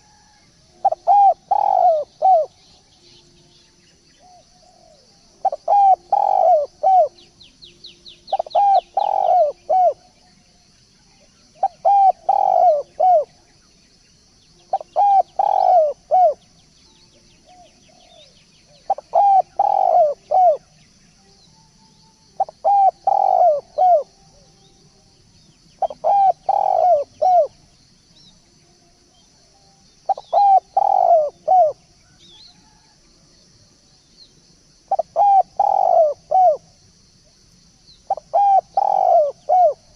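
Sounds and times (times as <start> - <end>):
dove cooing: 0.0 - 3.0, 4.2 - 7.3, 8.3 - 10.2, 11.5 - 13.5, 14.6 - 16.5, 17.4 - 20.7, 22.3 - 24.4, 25.8 - 27.6, 30.0 - 32.9, 34.9 - 36.8, 38.1 - 39.9
faint steady high hiss: 0.0 - 39.9
small birds chirping: 0.8 - 24.0, 24.6 - 28.5, 29.9 - 32.8, 34.0 - 39.9.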